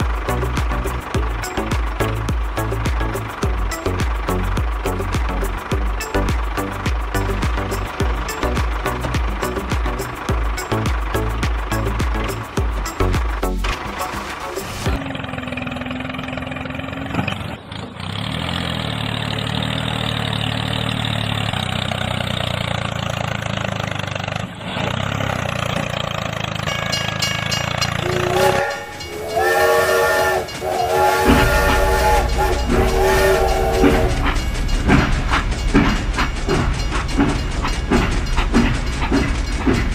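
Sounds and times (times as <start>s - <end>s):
train running: 0.0s - 39.9s
train horn blasts: 28.0s - 34.5s.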